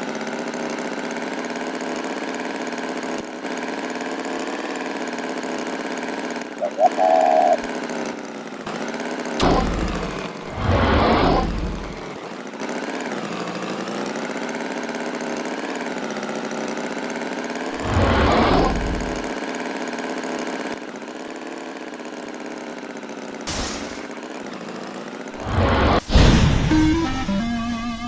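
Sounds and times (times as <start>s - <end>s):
engine running: 0.0s - 21.1s, 23.2s - 28.0s
loud rushing bursts: 17.7s - 19.3s, 23.5s - 24.2s, 25.4s - 28.0s.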